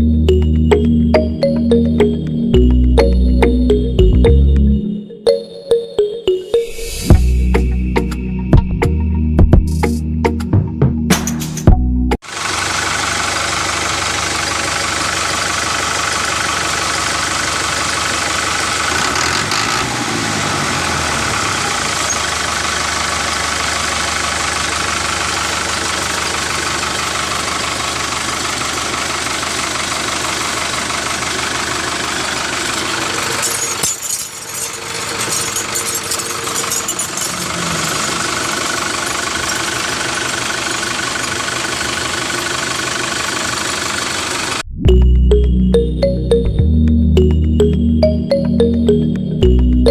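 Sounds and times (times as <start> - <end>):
tractor-like engine running: 0.0 - 4.8, 11.1 - 49.9
rattling clicks: 33.3 - 40.4.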